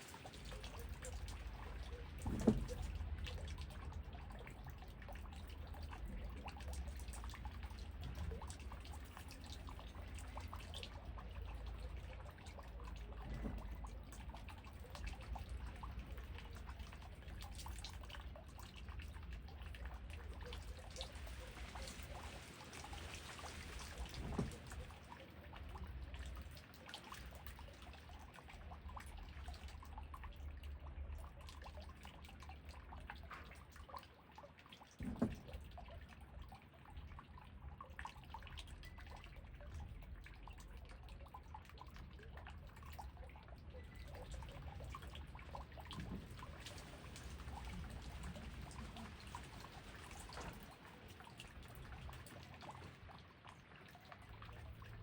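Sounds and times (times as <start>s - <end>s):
water dripping: 0.0s - 55.0s
heavy drips or knocks: 1.7s - 3.8s, 35.0s - 35.8s
rain falling: 20.2s - 25.1s, 46.0s - 53.0s.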